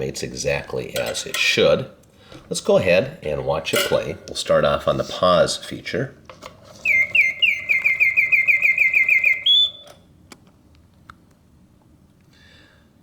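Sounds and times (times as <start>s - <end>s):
mechanical bird whistle trill: 6.8s - 10.0s.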